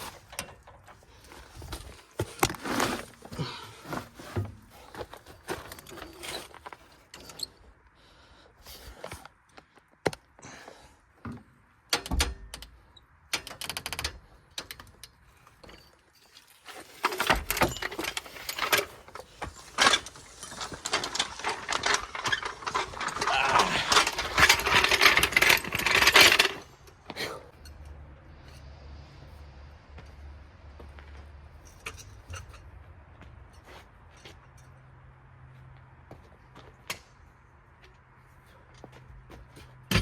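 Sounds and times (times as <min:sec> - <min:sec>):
impact wrench rattling: 0:17.0 - 0:26.7.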